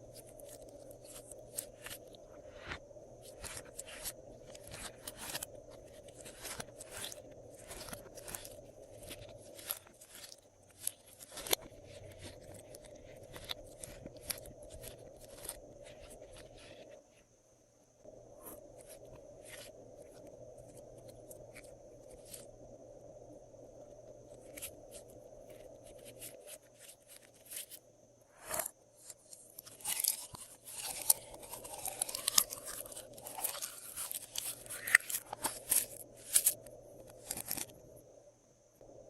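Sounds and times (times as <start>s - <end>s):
slime squished and crackling: 0.1s - 16.6s, 29.6s - 37.8s.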